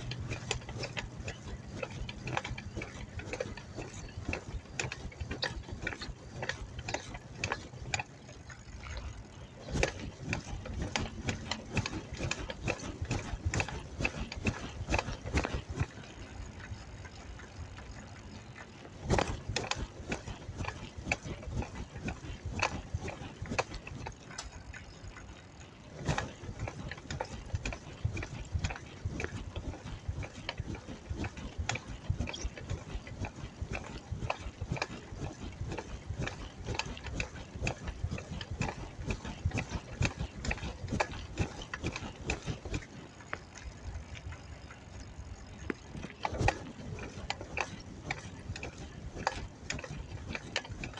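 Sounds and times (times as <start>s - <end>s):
bicycle clicking and rattling: 0.0s - 50.9s
freewheel ratcheting: 0.0s - 50.9s.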